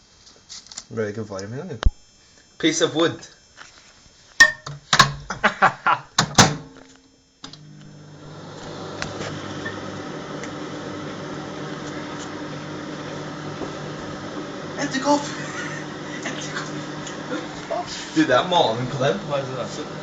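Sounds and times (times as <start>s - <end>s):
microwave humming: 4.4s - 20.0s
microwave door shutting: 6.2s - 6.6s.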